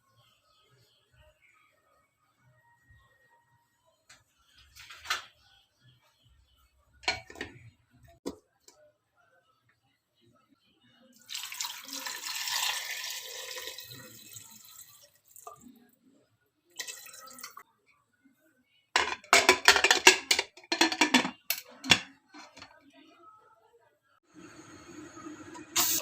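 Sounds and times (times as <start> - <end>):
water running from tap: 11.2 - 15.6, 16.8 - 17.6, 24.8 - 26.0.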